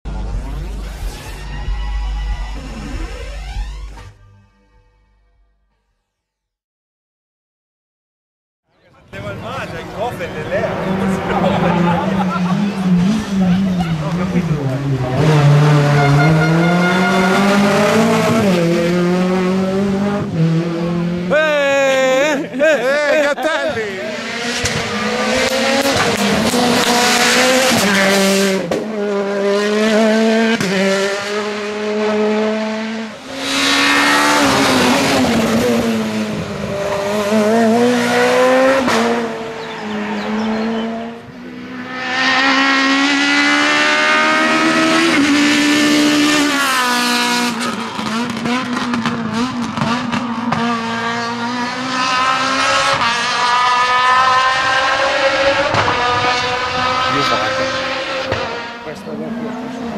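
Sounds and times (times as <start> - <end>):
rally car engines revving: 9.0 - 59.9.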